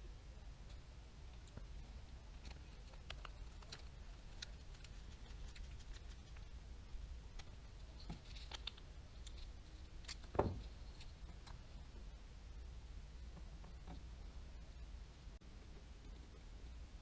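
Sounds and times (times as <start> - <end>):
low steady hum: 0.0 - 17.0
small parts and tools clicking: 0.6 - 6.5, 7.3 - 11.8.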